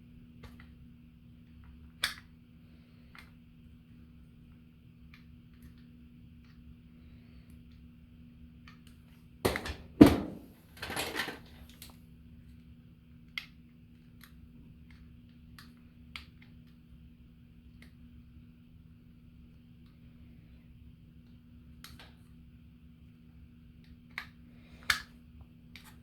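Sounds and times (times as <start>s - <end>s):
faint clicks of small parts: 0.4s - 0.8s, 1.4s - 8.0s, 8.6s - 9.2s, 10.8s - 18.5s, 19.2s - 22.4s, 23.7s - 26.0s
knocks on workbench: 9.5s - 10.5s.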